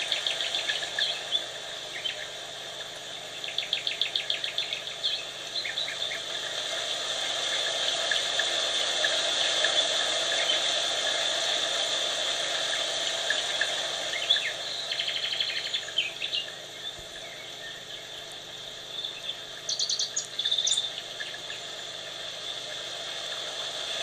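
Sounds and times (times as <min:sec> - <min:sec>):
birds chirping: 0:00.0 - 0:06.7, 0:12.8 - 0:22.6
insect drone: 0:00.0 - 0:24.0.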